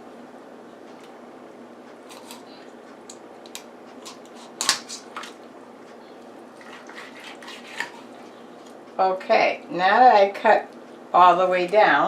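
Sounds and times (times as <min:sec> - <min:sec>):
knife crunching through bone: 0:04.0 - 0:05.4.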